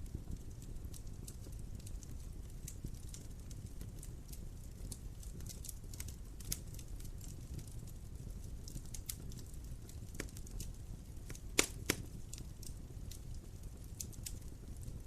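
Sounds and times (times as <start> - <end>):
wood fire crackling: 0.0 - 15.0
loud fire pops: 8.8 - 13.4.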